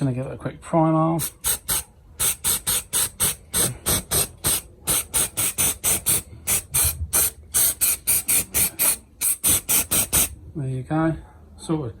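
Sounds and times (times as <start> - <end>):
aerosol can spraying in bursts: 1.2 - 10.4.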